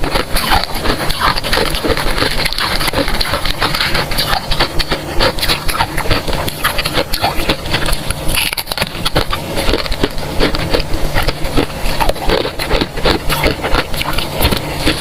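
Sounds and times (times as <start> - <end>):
frost being chewed crunching: 0.0 - 15.0.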